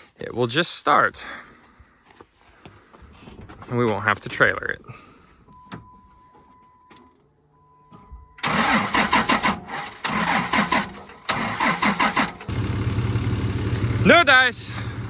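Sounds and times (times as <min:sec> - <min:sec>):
starter cranking engine: 0:08.4 - 0:14.1.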